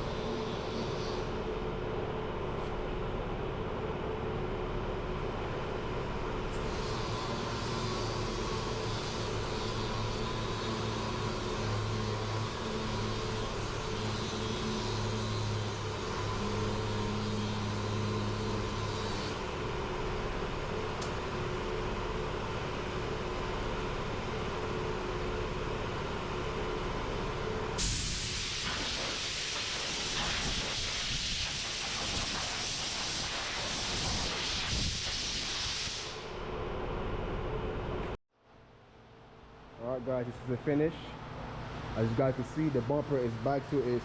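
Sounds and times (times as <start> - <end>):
loud steady hiss: 27.8 - 36.4.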